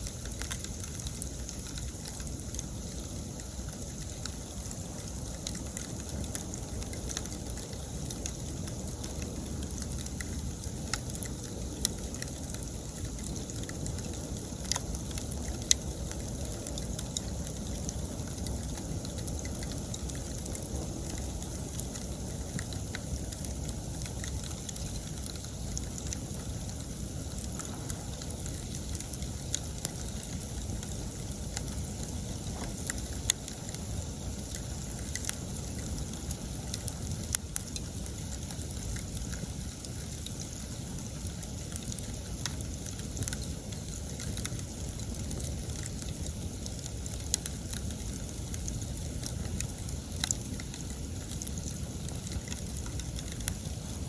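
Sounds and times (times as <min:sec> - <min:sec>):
campfire crackling: 0:00.0 - 0:54.0
sharp fire pops: 0:00.1 - 0:40.9.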